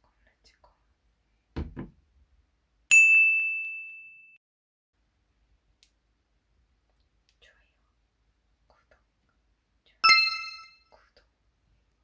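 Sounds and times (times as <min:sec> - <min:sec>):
bright ding: 0:10.0 - 0:10.8.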